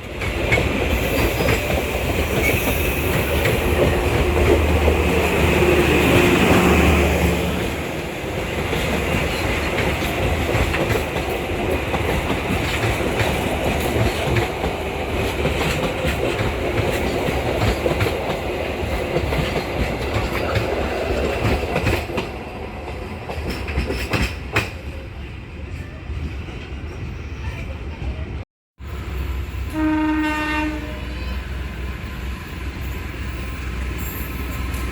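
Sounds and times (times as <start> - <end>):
train wheels clacking over rail joints: 0.1 - 6.6, 8.3 - 24.8.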